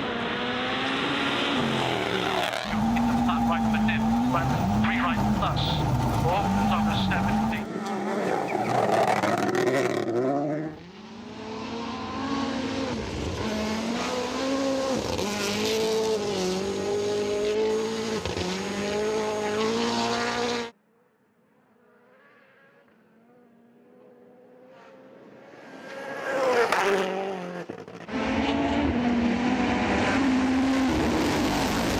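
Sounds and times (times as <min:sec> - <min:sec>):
rally car engine revving: 0:00.0 - 0:20.7, 0:21.9 - 0:31.9
faint approaching car engine: 0:01.6 - 0:13.4.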